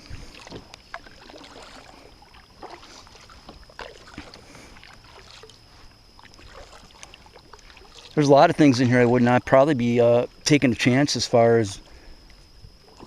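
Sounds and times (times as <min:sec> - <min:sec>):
low steady rumble: 0:00.0 - 0:13.0
light splashes on hull: 0:00.2 - 0:08.2
knocks and clicks on hull: 0:00.3 - 0:01.8.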